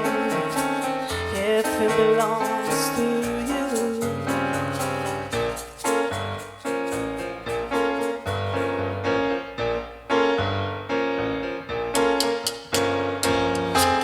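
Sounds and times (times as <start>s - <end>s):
piano chords: 0.0s - 14.0s
low bass notes: 12.7s - 14.0s.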